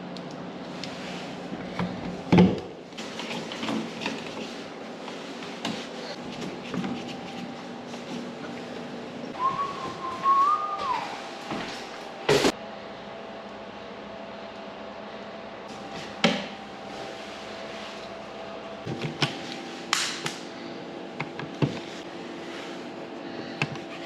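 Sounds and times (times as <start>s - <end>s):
whistle-like tone: 9.4s - 11.2s.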